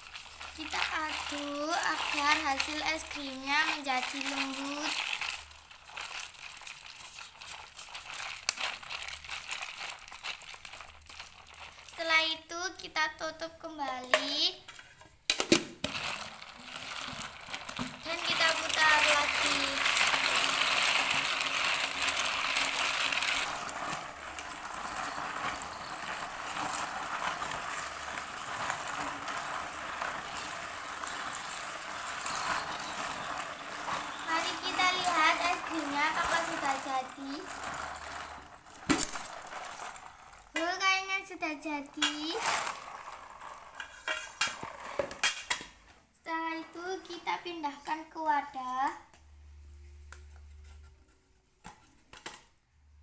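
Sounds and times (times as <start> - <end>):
ice shifting against metal can: 0.0 - 12.1, 15.8 - 45.7, 46.6 - 48.6
spoon scraping ice cream in tin: 32.2 - 35.9.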